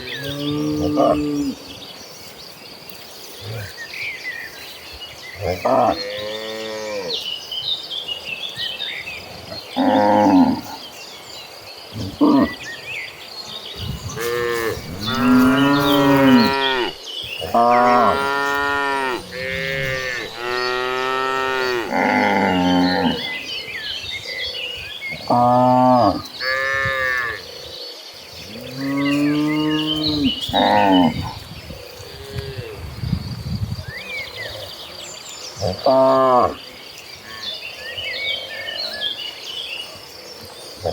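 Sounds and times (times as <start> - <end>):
cattle mooing: 14.1 - 23.4.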